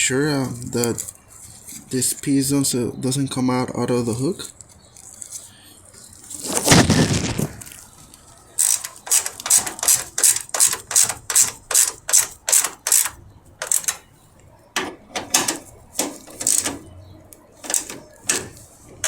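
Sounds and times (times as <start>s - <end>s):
ratchet wrench ratcheting: 8.6s - 14.0s, 15.3s - 16.8s, 17.7s - 18.6s.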